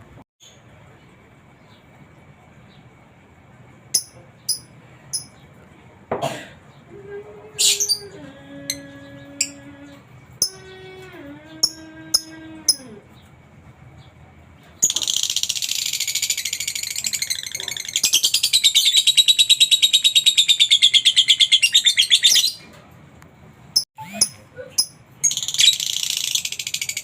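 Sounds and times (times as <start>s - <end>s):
lovebird chattering trill: 4.0s - 5.3s, 10.4s - 10.8s, 11.6s - 12.9s, 24.0s - 27.0s
low bending hum: 6.7s - 14.4s.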